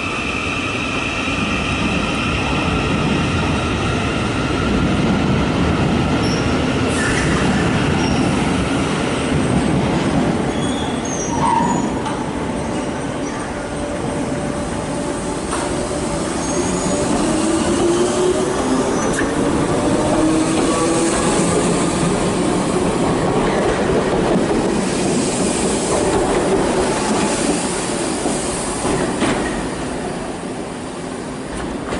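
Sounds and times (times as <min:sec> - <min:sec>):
electric train whine: 0:11.4 - 0:31.7.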